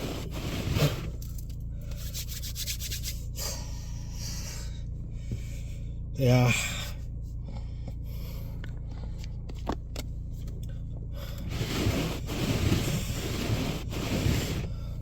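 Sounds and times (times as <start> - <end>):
rustling and scraping: 0.0 - 3.3, 11.4 - 14.7
car engine idling: 0.0 - 15.0.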